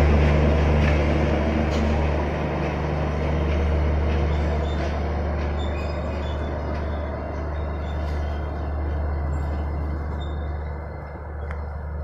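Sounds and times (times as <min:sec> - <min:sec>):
train wheels rumbling on track: 0:00.0 - 0:12.0
faint high squeaks: 0:09.3 - 0:10.7.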